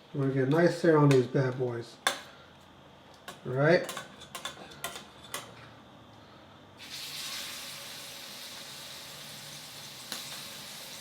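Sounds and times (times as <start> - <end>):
steak sizzling in a pan: 6.8 - 11.0.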